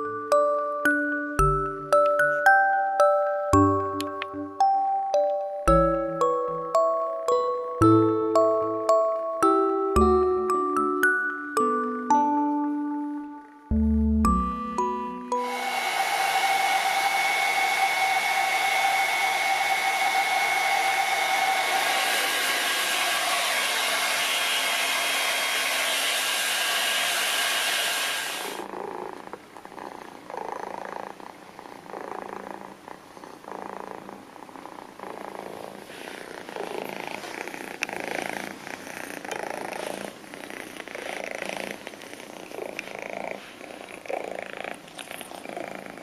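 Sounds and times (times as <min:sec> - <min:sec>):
hair dryer running: 0:15.3 - 0:28.7
kitten purring softly: 0:28.6 - 0:46.0.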